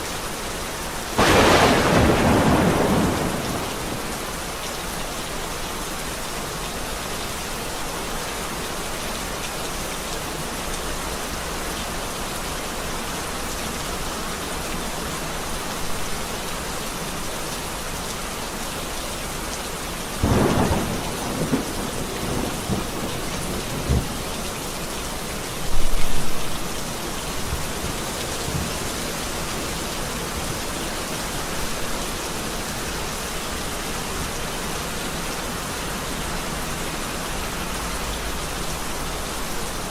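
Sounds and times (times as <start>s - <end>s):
steady rain: 0.0s - 39.9s
thunder crack and rumble: 1.2s - 4.2s, 20.2s - 24.2s.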